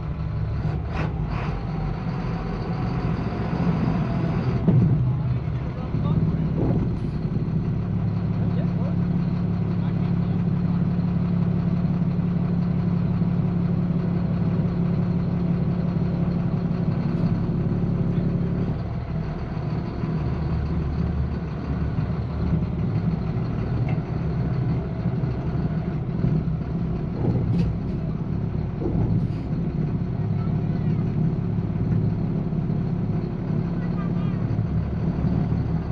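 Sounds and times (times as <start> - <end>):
truck engine idling: 0.0 - 35.9.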